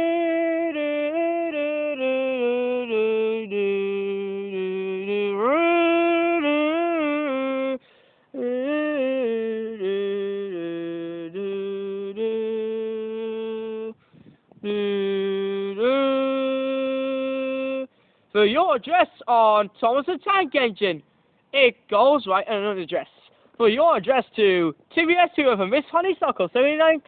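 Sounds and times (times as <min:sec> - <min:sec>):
person humming a tune: 0:00.0 - 0:17.9.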